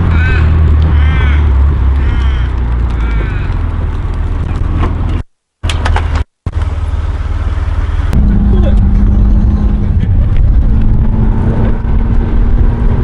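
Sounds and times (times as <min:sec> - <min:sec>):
bird calling: 0:00.0 - 0:03.6
car engine idling: 0:06.5 - 0:12.2.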